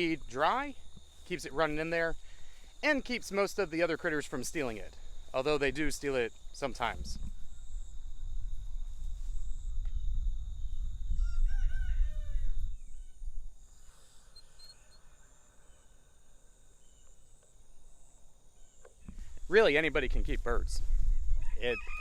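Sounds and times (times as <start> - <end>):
crickets droning: 0.0 - 22.0
low rumble on microphone: 6.9 - 13.6
rooster crowing: 11.1 - 12.7, 21.3 - 22.0.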